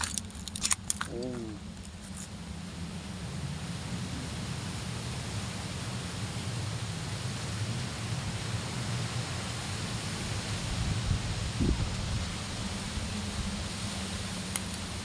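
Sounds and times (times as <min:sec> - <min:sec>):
wind buffeting on microphone: 0:10.1 - 0:13.8
strong wind rushing: 0:10.2 - 0:13.1.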